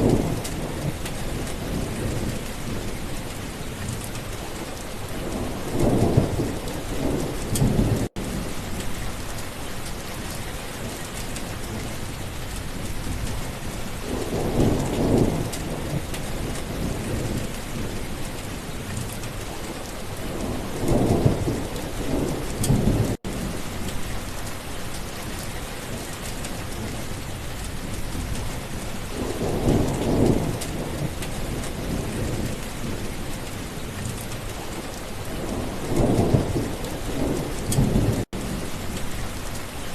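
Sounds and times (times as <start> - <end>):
thunder rumbling: 0.0 - 3.0, 5.1 - 9.3, 14.0 - 18.2, 20.2 - 24.2, 27.8 - 33.2, 34.7 - 39.5
steady rain: 0.0 - 39.9.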